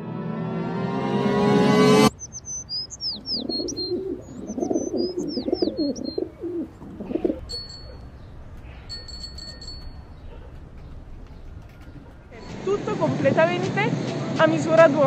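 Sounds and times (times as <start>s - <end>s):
high trilling bird notes: 2.0s - 12.5s
birds chirping: 2.0s - 14.2s
bird cooing: 2.3s - 12.6s.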